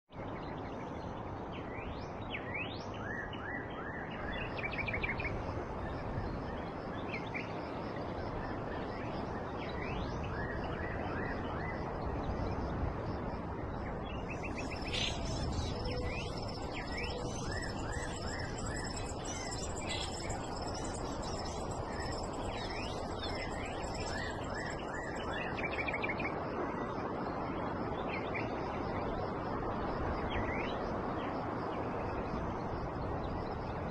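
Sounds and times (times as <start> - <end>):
outdoor background hiss: 0.2 - 33.9
birds chirping: 14.1 - 25.8.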